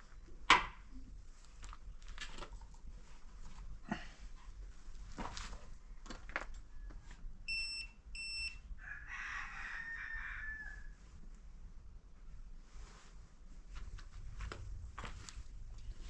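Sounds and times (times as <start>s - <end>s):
short electronic beeps: 7.5s - 8.6s
rooster crowing: 8.8s - 11.0s.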